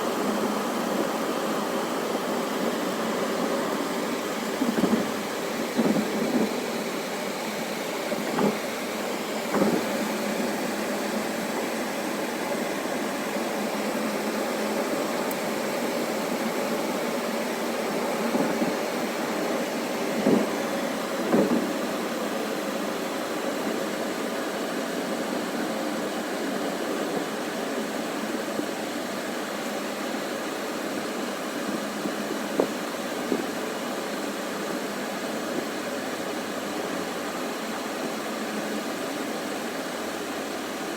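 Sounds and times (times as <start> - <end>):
wind gusts knocking microphone: 3.6 - 6.7.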